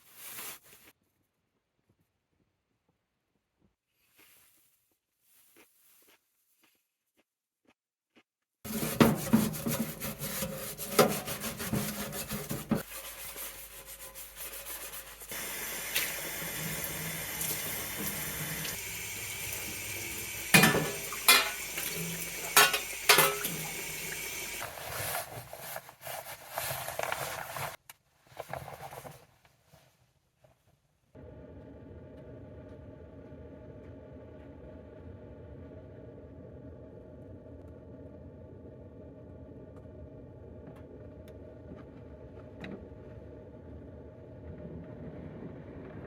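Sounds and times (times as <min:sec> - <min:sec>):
pots and dishes clattering: 0:08.7 - 0:12.8, 0:20.5 - 0:24.6
water running: 0:08.7 - 0:26.2.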